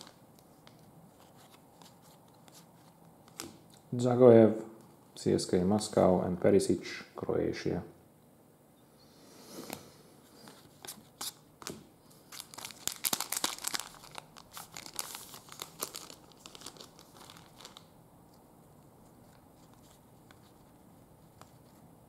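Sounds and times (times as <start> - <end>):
plastic wrapper crinkling and tearing: 0.0 - 3.8, 10.8 - 18.0.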